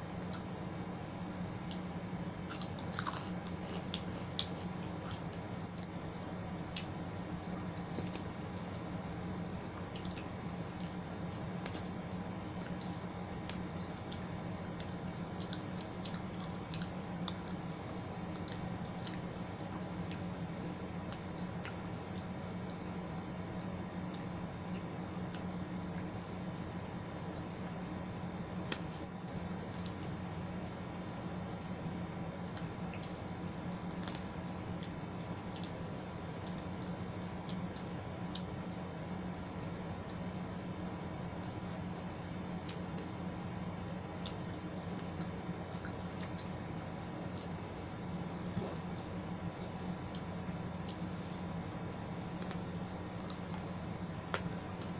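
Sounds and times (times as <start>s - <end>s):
steady low hum: 0.0s - 54.9s
chewing with mouth clicks: 0.1s - 26.2s, 32.4s - 38.7s, 41.4s - 43.2s, 44.0s - 54.9s.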